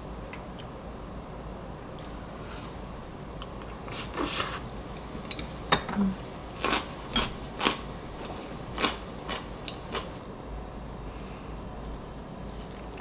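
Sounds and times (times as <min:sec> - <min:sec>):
crunching while eating: 0:06.6 - 0:10.3.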